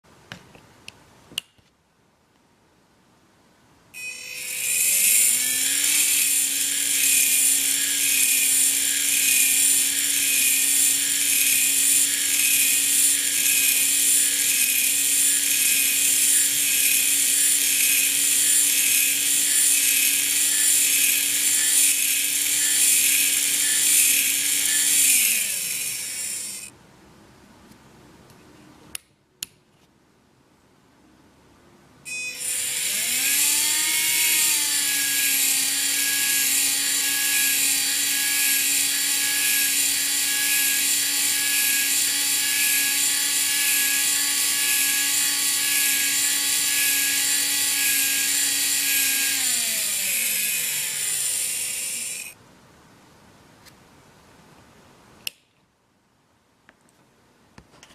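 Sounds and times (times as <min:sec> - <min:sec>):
gear motors whirring: 0:04.1 - 0:26.7, 0:32.3 - 0:52.4.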